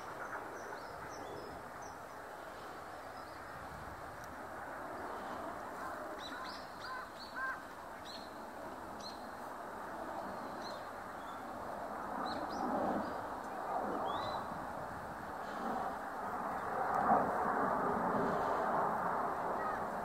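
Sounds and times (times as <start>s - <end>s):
small birds chirping: 6.2s - 8.4s.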